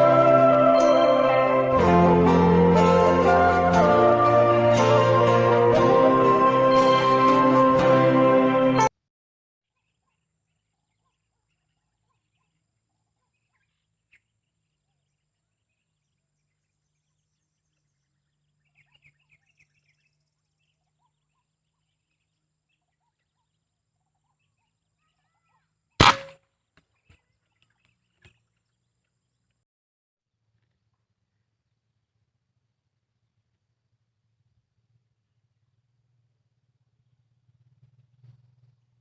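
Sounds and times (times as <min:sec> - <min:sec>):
faint bird chirps: 0:09.7 - 0:26.0
air rifle shot: 0:26.0 - 0:26.4.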